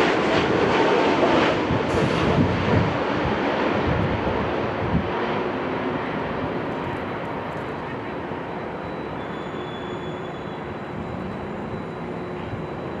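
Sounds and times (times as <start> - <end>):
jet engines running: 0.0 - 13.0
wind buffeting microphone: 1.3 - 5.6.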